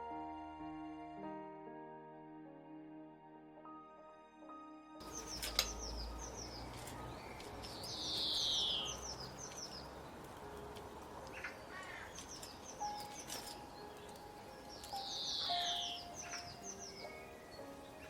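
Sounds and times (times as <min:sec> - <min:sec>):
birds chirping: 0:05.0 - 0:18.0.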